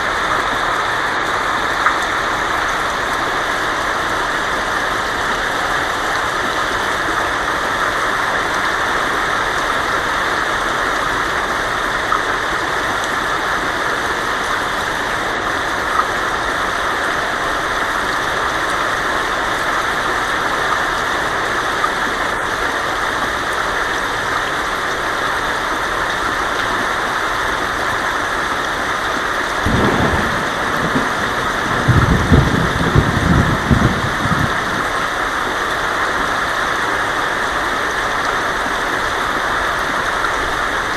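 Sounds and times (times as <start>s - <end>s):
heavy rain on a tin roof: 0.0s - 40.9s
thunder rumbling: 29.6s - 35.2s.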